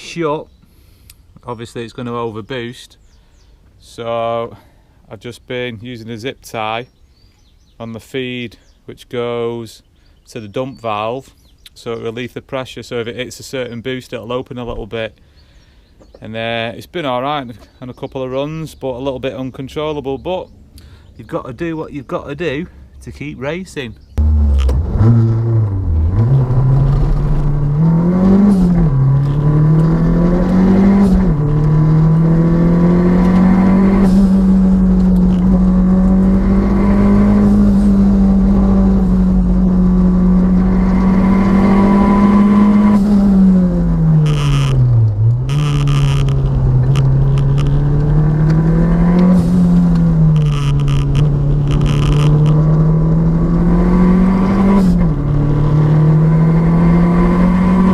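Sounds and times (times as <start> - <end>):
exhaust crackles: 22.6 - 57.9
turbocharged engine revving hard: 24.2 - 57.9.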